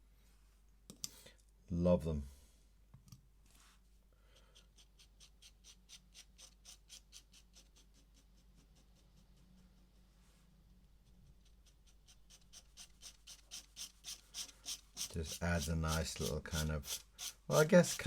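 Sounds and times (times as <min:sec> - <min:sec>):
pen scratching on paper: 0:04.4 - 0:10.2, 0:11.0 - 0:18.0.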